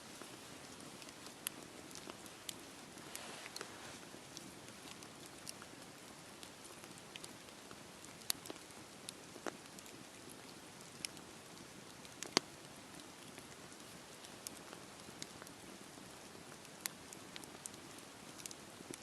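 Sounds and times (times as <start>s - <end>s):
campfire crackling and popping: 0.0s - 19.0s
rain hissing: 2.0s - 4.4s.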